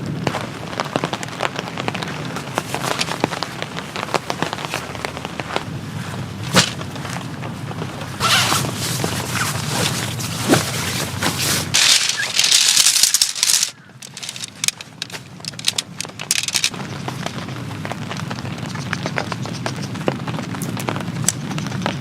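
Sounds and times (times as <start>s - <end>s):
rain pattering: 0.0s - 22.0s
irregular clicks and knocks: 11.8s - 17.4s.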